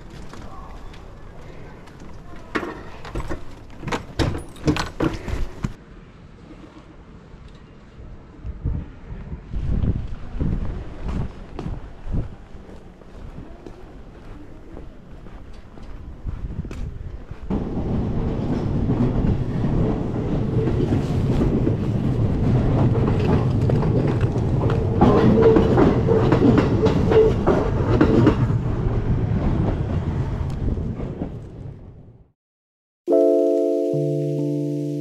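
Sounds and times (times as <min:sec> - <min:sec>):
train rumbling past: 0:05.8 - 0:32.2
clickety-clack of train wheels: 0:08.4 - 0:31.6.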